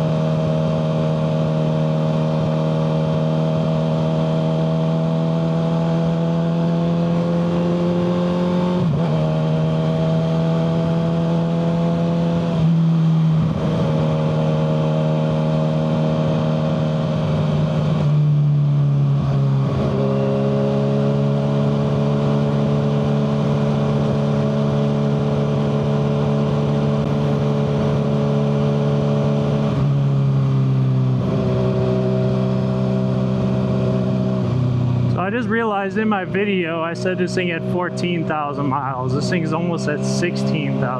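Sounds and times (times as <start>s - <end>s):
motorcycle engine running: 12.1s - 40.9s.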